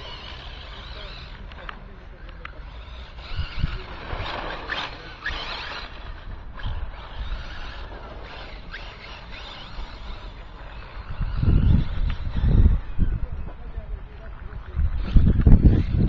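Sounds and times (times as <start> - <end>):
electric motor whine: 0.0 - 13.5.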